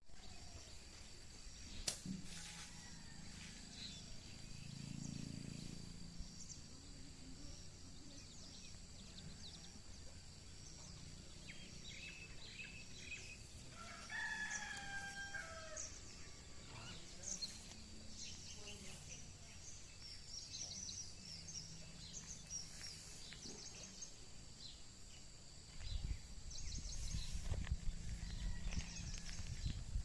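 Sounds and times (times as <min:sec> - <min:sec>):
sharp click: 0:01.8 - 0:02.2
small birds chirping: 0:02.8 - 0:30.0
rooster crowing: 0:13.7 - 0:16.5, 0:28.0 - 0:29.7.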